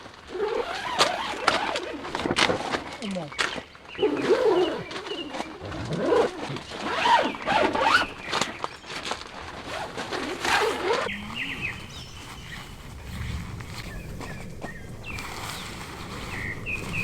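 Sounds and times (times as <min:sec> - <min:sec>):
zipper pulled open and shut: 0:00.0 - 0:03.1, 0:03.9 - 0:13.2.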